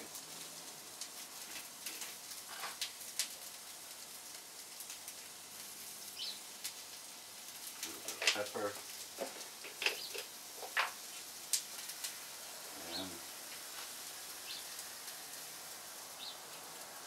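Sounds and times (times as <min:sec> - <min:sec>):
oil pops and crackles: 0:00.0 - 0:12.2
vegetables sizzling in hot oil: 0:00.0 - 0:17.0.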